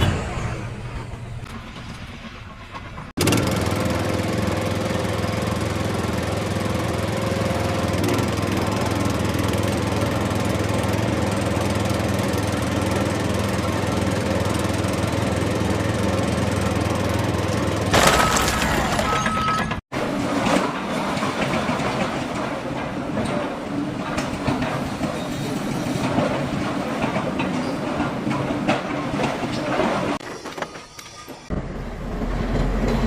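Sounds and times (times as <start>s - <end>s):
engine running steadily: 0.0s - 18.4s.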